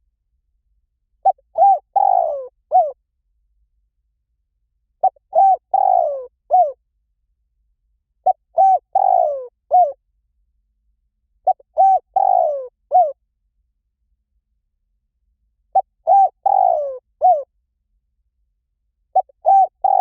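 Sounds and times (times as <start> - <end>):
dove cooing: 1.2 - 3.0, 5.0 - 6.8, 8.2 - 10.0, 11.4 - 13.2, 15.8 - 17.5, 19.2 - 20.0.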